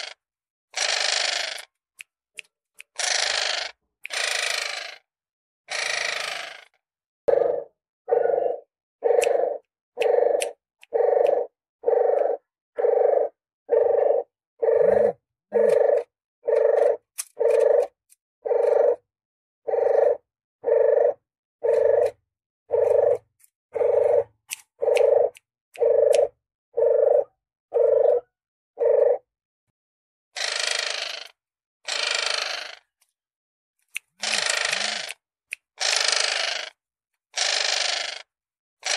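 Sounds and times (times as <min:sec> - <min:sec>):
dove cooing: 0:07.3 - 0:19.0, 0:19.7 - 0:29.3.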